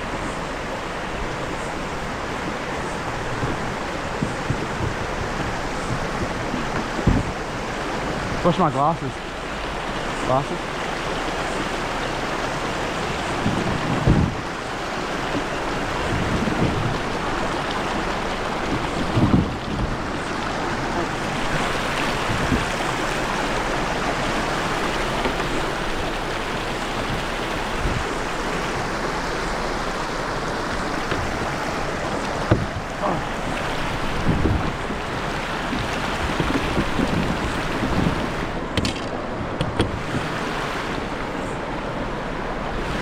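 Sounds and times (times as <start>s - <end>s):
rushing creek water: 0.0s - 43.0s
dull knock: 4.2s - 7.4s, 32.4s - 32.9s.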